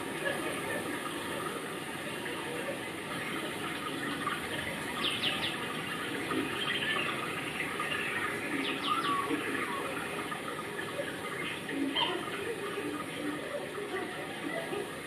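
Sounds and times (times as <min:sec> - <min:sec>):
bird chirping: 0:04.9 - 0:05.6, 0:07.8 - 0:09.9.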